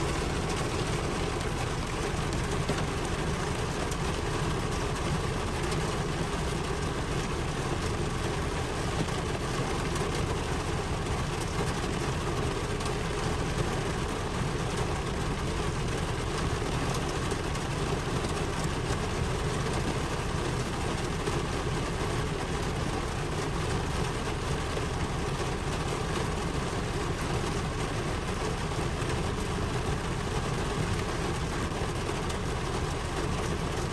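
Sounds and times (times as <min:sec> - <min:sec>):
steady rain: 0:00.0 - 0:33.9.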